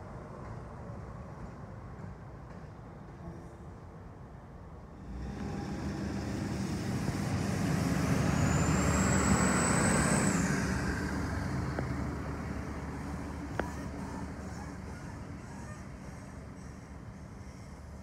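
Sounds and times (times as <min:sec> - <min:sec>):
vehicle passing by: 0:05.0 - 0:15.4.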